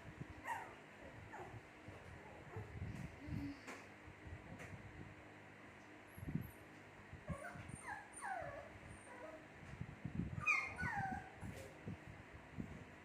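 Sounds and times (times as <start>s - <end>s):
puppies whimpering: 10.4s - 11.3s.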